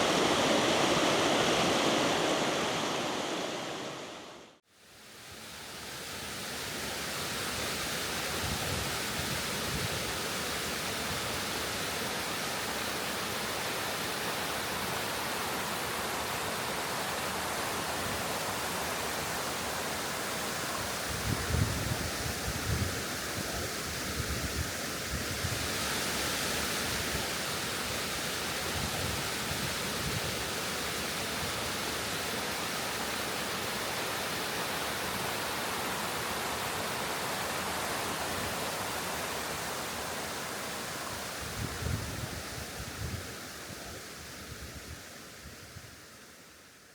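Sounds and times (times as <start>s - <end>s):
waterfall rushing: 0.0s - 4.6s, 30.5s - 41.8s.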